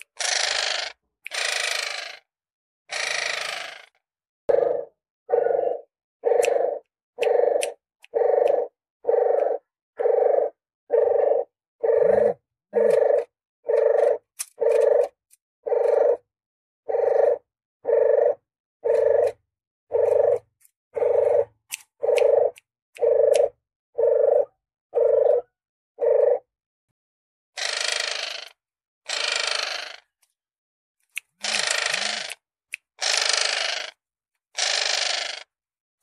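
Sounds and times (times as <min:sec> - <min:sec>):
dove cooing: 0:04.5 - 0:16.2, 0:16.9 - 0:26.5.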